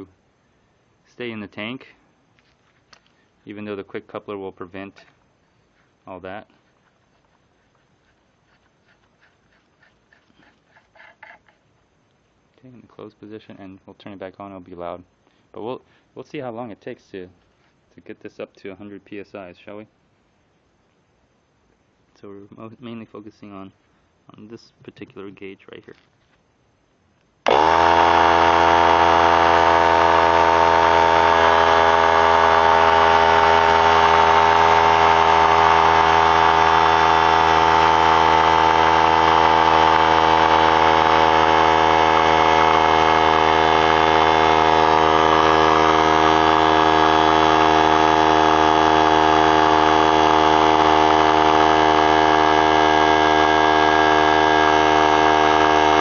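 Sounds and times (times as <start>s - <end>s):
air compressor running: 27.4s - 56.0s.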